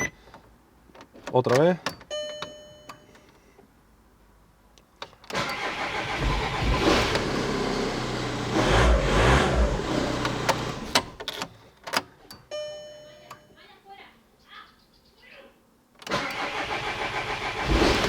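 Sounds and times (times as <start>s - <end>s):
car engine cranking starter motor: 5.3s - 11.3s, 16.0s - 18.0s.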